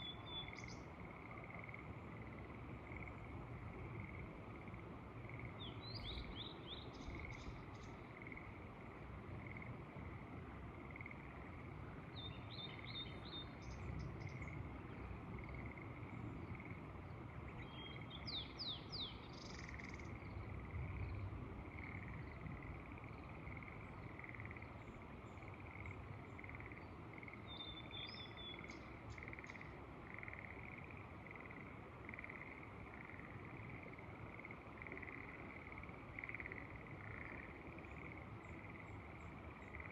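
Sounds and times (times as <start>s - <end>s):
low rumble of wind: 0.0s - 39.9s
frogs calling in chorus: 8.1s - 9.8s, 19.4s - 24.8s, 25.4s - 39.9s.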